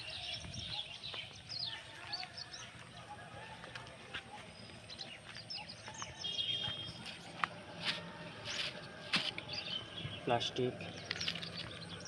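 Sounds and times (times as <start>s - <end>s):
small birds chirping and twittering: 0.0s - 12.0s.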